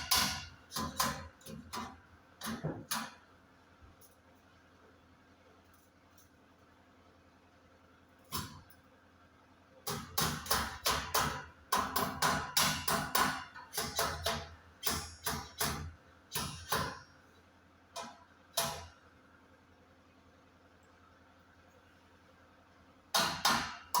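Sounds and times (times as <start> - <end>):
hammer striking metal: 0.0 - 1.9.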